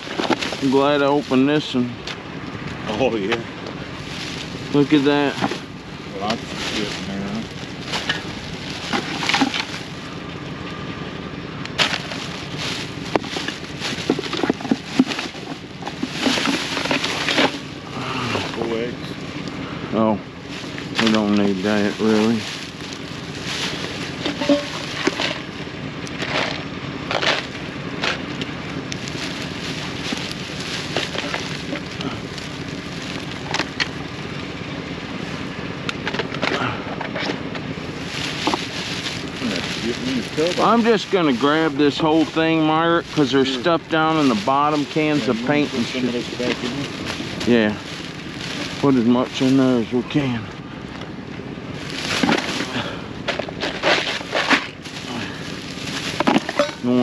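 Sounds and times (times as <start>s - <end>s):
household items rummaged through: 0.0s - 1.8s, 3.8s - 10.2s, 11.8s - 18.9s, 20.4s - 25.6s, 26.2s - 34.0s, 36.1s - 50.2s, 51.8s - 57.0s
clunks and rattles of junk: 0.0s - 10.7s, 11.6s - 18.6s, 22.0s - 34.1s, 35.9s - 41.2s, 51.8s - 56.9s.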